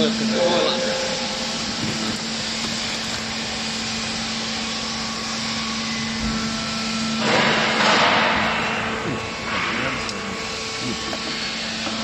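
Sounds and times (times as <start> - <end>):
rushing machine noise: 0.0 - 5.1
baler power unit hum: 0.0 - 12.0.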